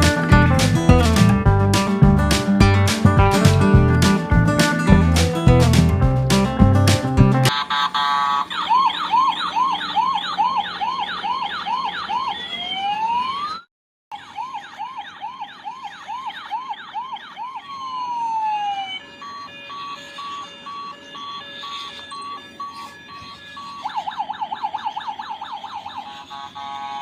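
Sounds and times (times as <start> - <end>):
rapid electronic beeping: 7.5 - 12.6, 14.1 - 27.0
toy siren wailing: 7.5 - 27.0.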